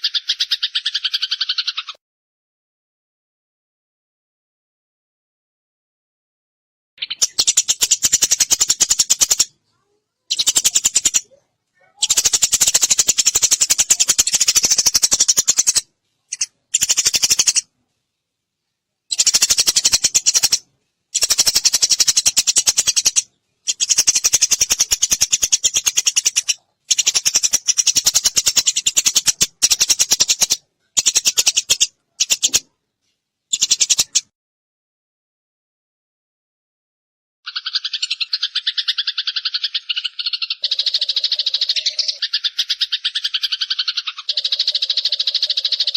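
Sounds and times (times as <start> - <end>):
sparrow chattering: 0.0 - 2.0, 7.0 - 17.7, 19.1 - 32.7, 33.5 - 34.3, 37.5 - 45.9.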